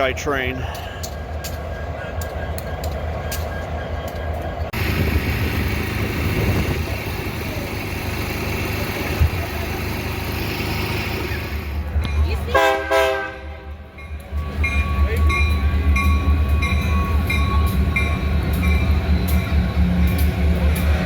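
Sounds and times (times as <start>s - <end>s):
diesel locomotive idling: 0.0s - 21.0s
locomotive air horn: 12.5s - 13.8s.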